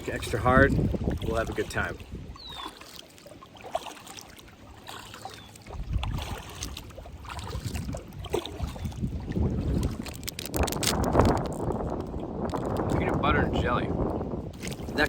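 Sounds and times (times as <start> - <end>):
wind gusting over microphone: 0.0 - 2.6, 5.7 - 15.0
sharp crackle: 10.0 - 12.8.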